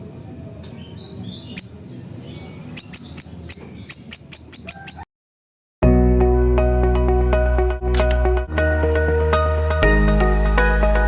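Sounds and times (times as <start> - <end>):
bird chirping and calling: 0.8 - 5.0.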